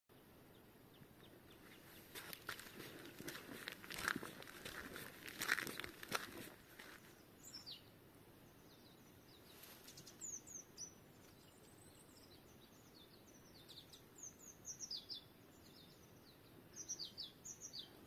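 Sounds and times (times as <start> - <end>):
rustling crunches: 2.0 - 7.1
tits chirping: 8.7 - 18.0.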